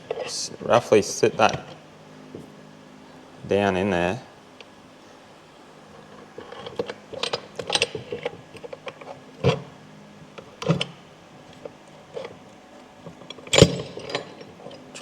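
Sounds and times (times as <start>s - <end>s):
metal gears clicking and clunking: 6.4s - 9.7s, 13.2s - 15.0s.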